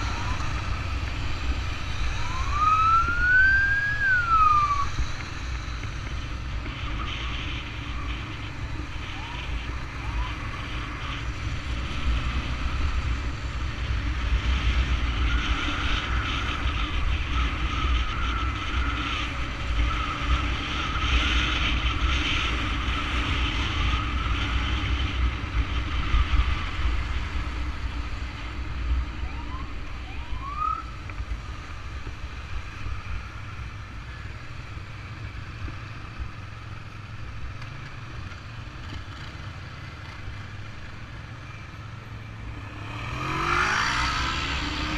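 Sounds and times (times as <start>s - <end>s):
rising siren whoops: 0.0s - 1.0s, 1.9s - 5.0s, 9.0s - 10.9s, 29.2s - 31.0s
siren warbling: 0.0s - 1.0s, 1.9s - 5.0s, 29.2s - 31.0s
motorcycle engines and road rumble: 0.0s - 44.9s.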